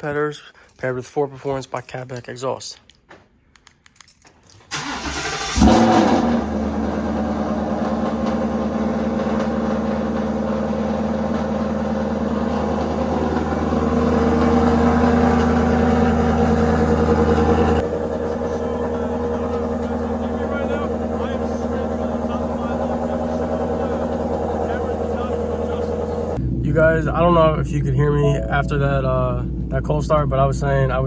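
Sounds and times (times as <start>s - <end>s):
starter motor cranking: 4.6s - 26.4s
engine idling loudly: 4.8s - 31.0s.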